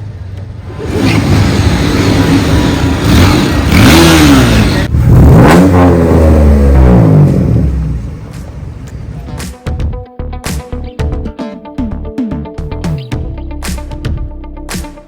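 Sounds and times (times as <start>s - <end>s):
vehicle engine revving: 0.0s - 9.2s.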